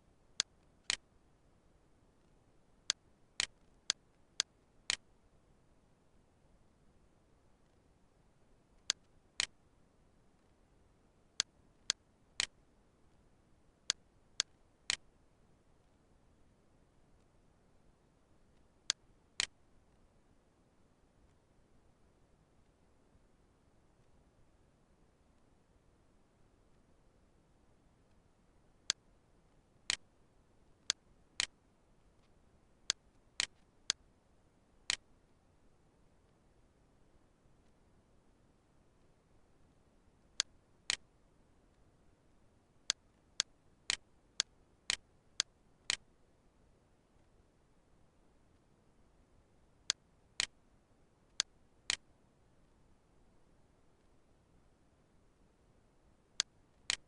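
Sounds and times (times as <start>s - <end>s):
computer mouse clicking: 2.9s - 5.1s, 18.9s - 19.6s, 32.9s - 34.0s, 56.4s - 57.0s
computer mouse clicks: 2.9s - 5.1s, 8.8s - 9.6s, 11.4s - 12.6s, 18.9s - 19.6s, 30.8s - 31.6s, 32.9s - 34.0s, 40.4s - 41.1s, 42.9s - 46.1s, 49.9s - 50.6s, 56.4s - 57.0s.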